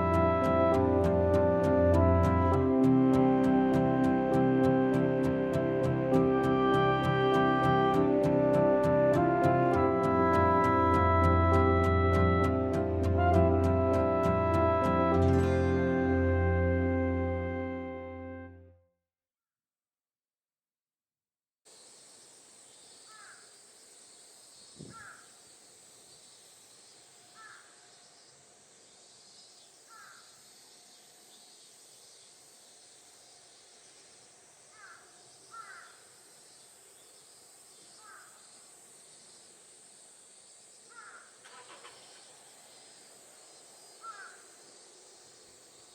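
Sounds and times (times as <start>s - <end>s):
high insect drone: 21.7s - 45.9s
crows cawing: 23.1s - 23.5s, 24.9s - 25.4s, 27.4s - 27.7s, 29.9s - 30.3s, 34.7s - 36.1s, 38.0s - 38.4s, 40.9s - 42.3s, 44.0s - 44.6s.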